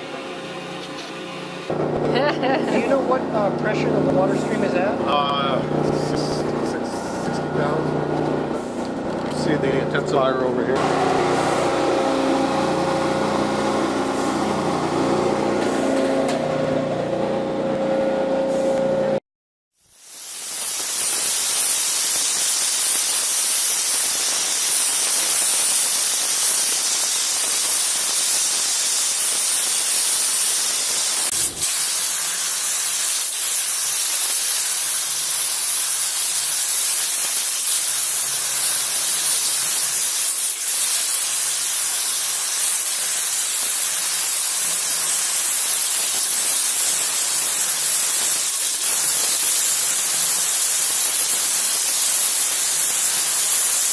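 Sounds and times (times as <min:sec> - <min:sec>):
water jet cutter hissing: 0:19.9 - 0:53.9.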